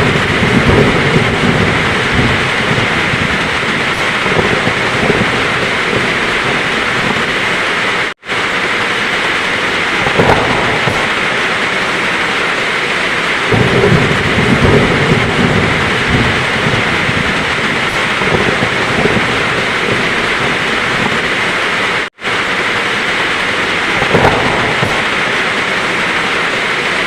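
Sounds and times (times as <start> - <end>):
heavy rain falling: 0.0 - 27.0
rolling thunder rumble: 0.0 - 27.0
thunder crack: 0.0 - 27.0.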